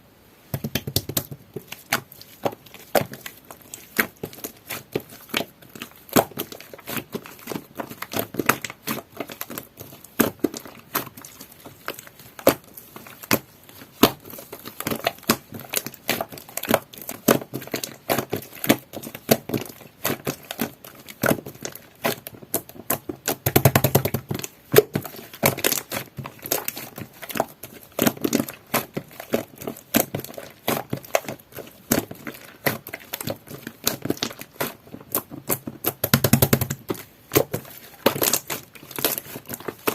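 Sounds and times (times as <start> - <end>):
slime crackling: 0.7 - 39.9
sticky clicks and pops: 21.2 - 27.4, 31.9 - 39.9.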